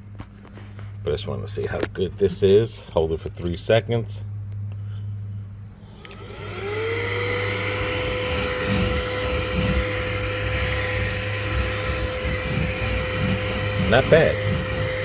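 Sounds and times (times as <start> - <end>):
air duster motor whining: 5.7 - 15.0.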